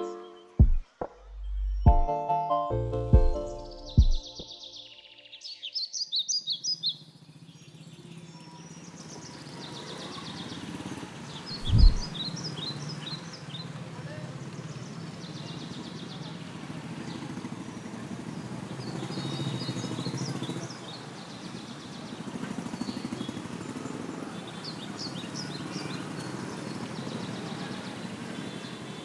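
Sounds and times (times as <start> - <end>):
birds chirping: 0.0 - 8.1, 11.4 - 13.5
uneven low rumble: 11.6 - 12.1.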